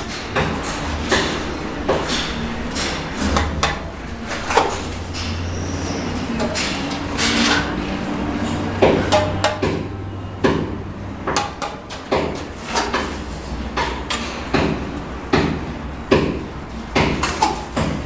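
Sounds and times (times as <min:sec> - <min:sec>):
low steady hum: 0:02.4 - 0:12.5.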